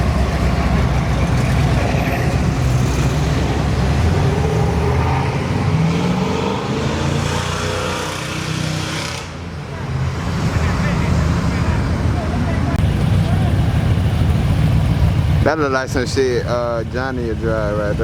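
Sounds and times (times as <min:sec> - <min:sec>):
car engine and exhaust: 0:00.0 - 0:18.0.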